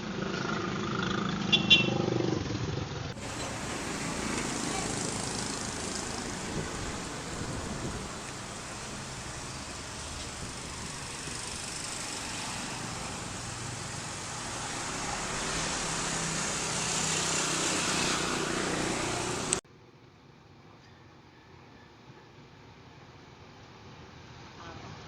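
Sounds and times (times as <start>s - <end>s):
faint engine hum: 0.0s - 19.6s
wind and road noise: 0.0s - 19.6s.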